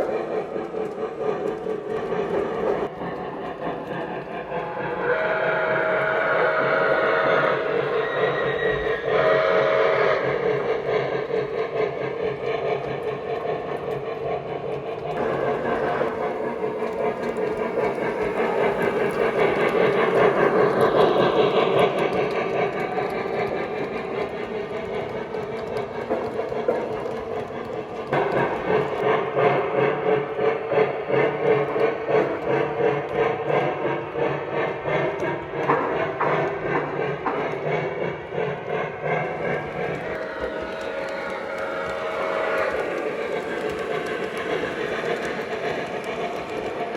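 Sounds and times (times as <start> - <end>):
model train rumbling on track: 0.0 - 46.9
steam locomotive chuffing: 0.0 - 46.9
steam whistle tones: 4.8 - 10.5.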